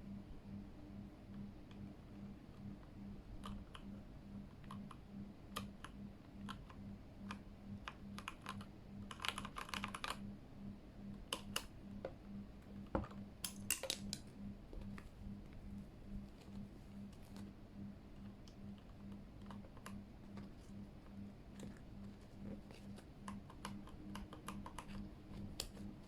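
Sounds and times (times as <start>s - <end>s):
mechanical keyboard typing: 3.4s - 3.9s, 4.5s - 10.2s, 22.7s - 26.0s.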